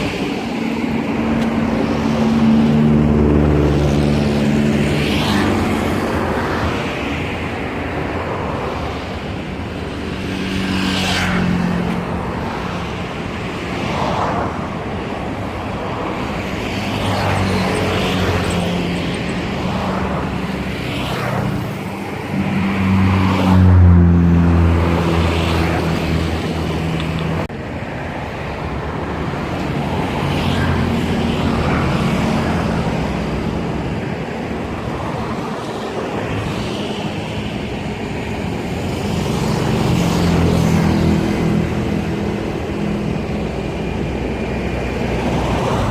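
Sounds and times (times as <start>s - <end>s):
tugboat diesel engines droning: 14.7s - 20.8s, 31.1s - 45.9s.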